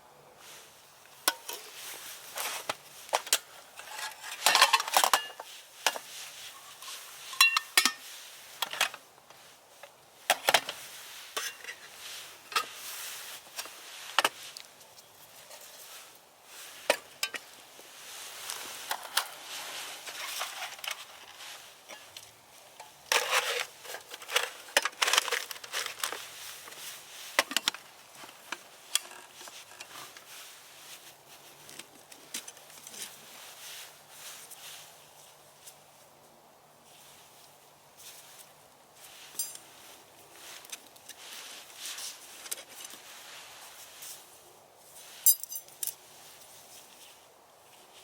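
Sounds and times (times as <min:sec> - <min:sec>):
metal gear clinking and rattling: 0:45.3 - 0:46.0.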